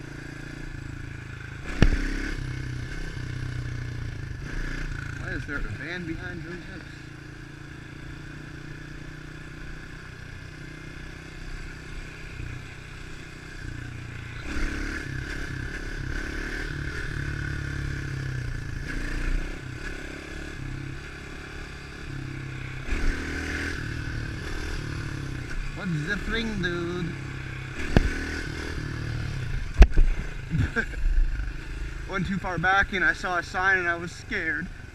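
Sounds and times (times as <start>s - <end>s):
pit bike engine revving: 0.0s - 34.9s.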